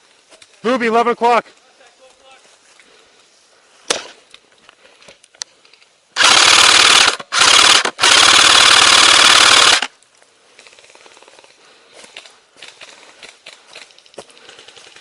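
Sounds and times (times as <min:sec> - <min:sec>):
airsoft rifle firing full auto: 0:06.2 - 0:09.9.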